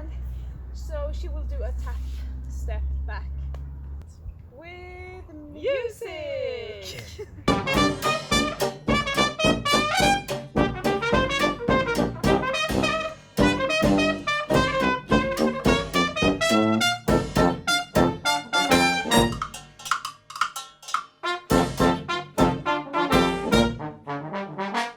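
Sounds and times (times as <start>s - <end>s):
trombone: 7.5s - 19.7s, 21.2s - 24.9s
jazz band playing: 7.5s - 19.8s, 21.2s - 24.9s
trumpet: 7.5s - 19.8s, 21.2s - 24.9s
drum beat: 7.5s - 23.9s.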